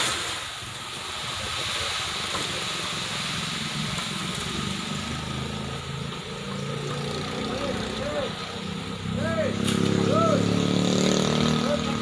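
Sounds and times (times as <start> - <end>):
engine running: 2.3 - 12.0.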